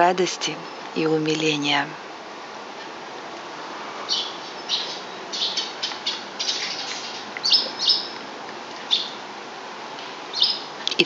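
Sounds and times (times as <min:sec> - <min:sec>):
small birds chirping: 0:02.8 - 0:09.3, 0:10.0 - 0:11.0.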